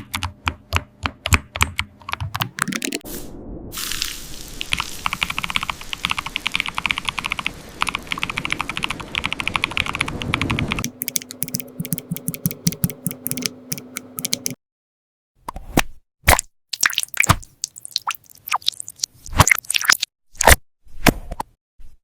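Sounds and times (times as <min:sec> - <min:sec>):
keyboard typing: 0:00.0 - 0:03.0, 0:04.7 - 0:14.6
steady low hum: 0:10.8 - 0:14.6.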